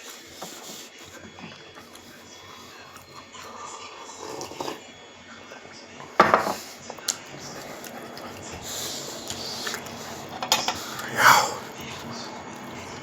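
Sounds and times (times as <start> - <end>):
cutlery clinking on plate: 6.2 - 6.7, 10.4 - 11.0.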